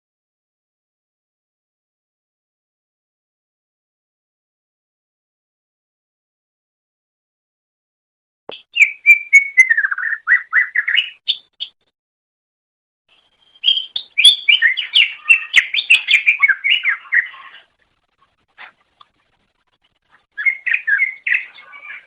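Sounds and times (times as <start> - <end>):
bird singing whistled chirps: 8.5 - 11.8, 13.1 - 17.6, 20.4 - 22.0.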